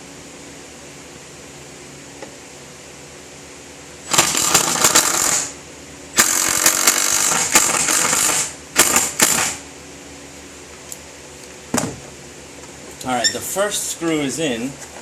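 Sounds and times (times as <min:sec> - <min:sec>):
power drill driving screw: 0:04.1 - 0:05.5, 0:06.2 - 0:09.6.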